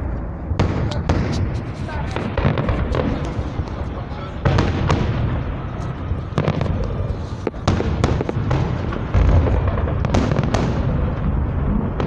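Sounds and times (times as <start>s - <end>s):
fireworks shell bursts rumbling: 0.0s - 12.0s
sharp firework cracks: 0.0s - 12.0s.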